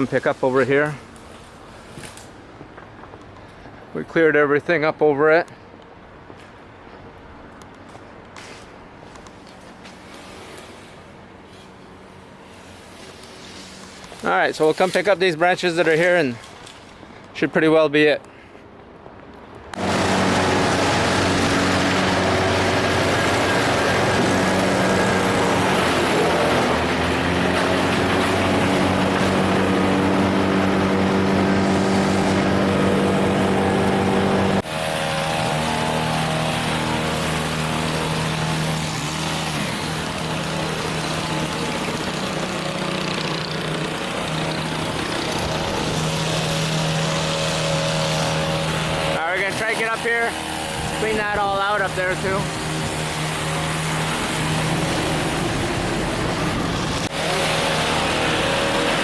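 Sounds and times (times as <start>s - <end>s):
engine running steadily: 19.7s - 59.0s.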